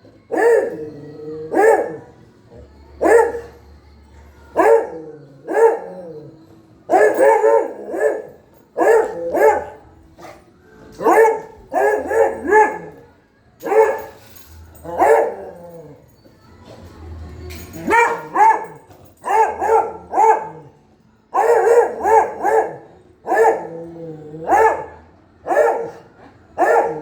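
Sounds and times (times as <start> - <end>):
puppy barking: 1.5 - 2.1, 4.6 - 6.0, 6.9 - 9.8, 11.0 - 13.0, 14.9 - 15.6, 17.9 - 20.7, 21.4 - 23.8, 24.5 - 26.0, 26.6 - 27.0.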